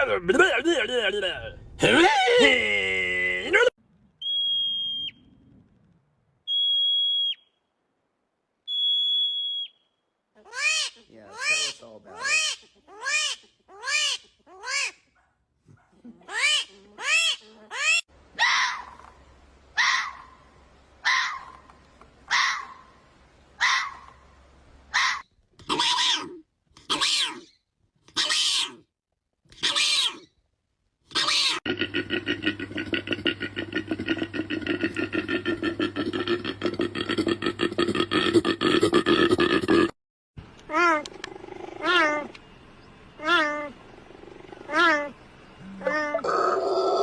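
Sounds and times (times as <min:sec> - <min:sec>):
steady background hiss: 0:18.1 - 0:25.1
harsh raspy animal calls: 0:25.0 - 0:28.8, 0:29.6 - 0:30.3, 0:31.1 - 0:40.0, 0:40.8 - 0:42.4, 0:43.2 - 0:47.0
steady low hum: 0:40.4 - 0:46.8.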